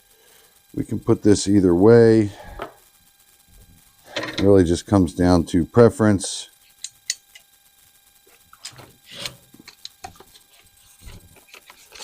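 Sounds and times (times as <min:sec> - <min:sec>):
small parts scraping: 0:08.2 - 0:12.0.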